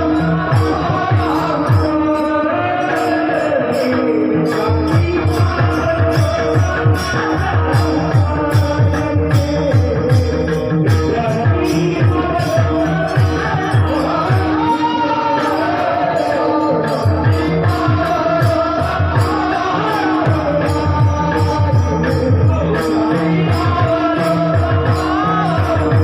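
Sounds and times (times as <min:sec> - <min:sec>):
jingling metal percussion: 0:00.0 - 0:26.0
person singing: 0:00.0 - 0:26.0
low drum beat: 0:04.6 - 0:15.0, 0:17.0 - 0:26.0.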